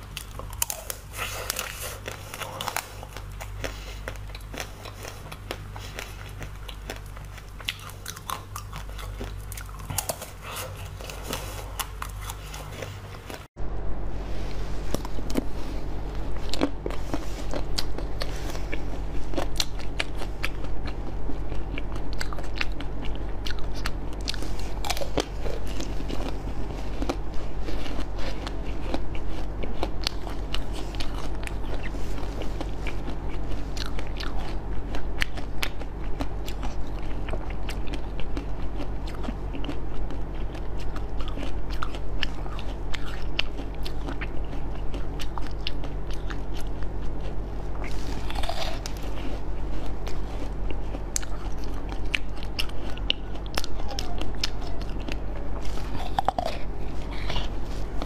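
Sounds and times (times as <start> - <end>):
crunching and chewing strawberries: 0.0 - 13.5, 14.4 - 58.0.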